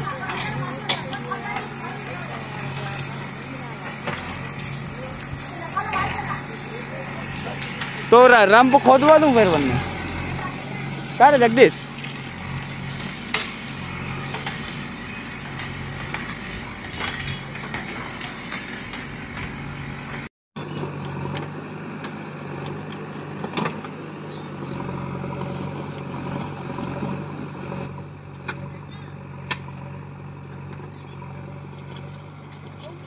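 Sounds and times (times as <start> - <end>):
high steady whine: 0.0 - 23.3
backhoe diesel engine digging: 0.0 - 33.0.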